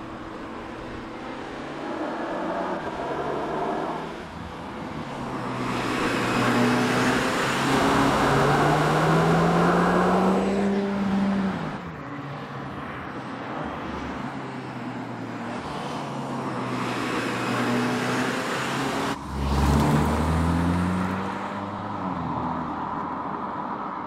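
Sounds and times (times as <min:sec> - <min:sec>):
car engine and exhaust accelerating: 0:00.0 - 0:12.1, 0:15.4 - 0:23.5.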